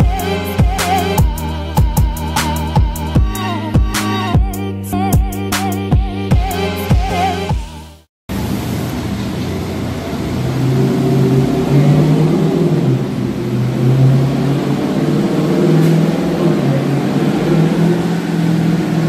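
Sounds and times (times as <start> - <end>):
car engine running steadily: 8.3 - 19.0.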